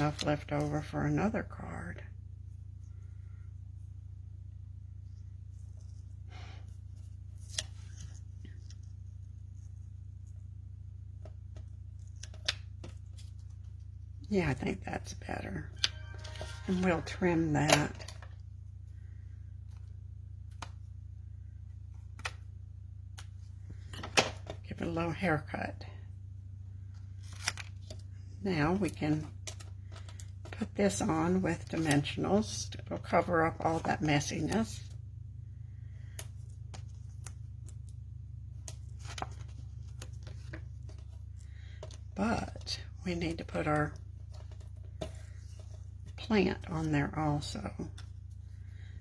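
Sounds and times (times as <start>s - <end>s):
low steady hum: 0.0s - 49.0s
paper rustling: 5.1s - 10.4s, 26.9s - 34.9s, 35.8s - 49.0s.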